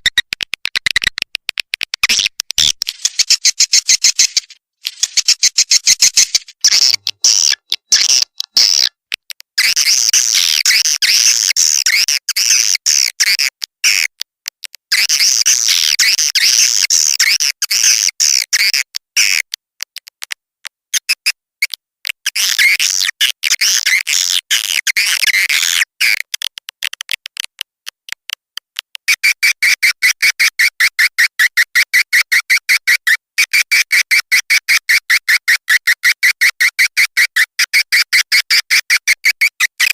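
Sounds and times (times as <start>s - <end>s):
swiftlet chirping and twittering: 2.6s - 8.3s
fast even train of chirps: 2.9s - 7.0s.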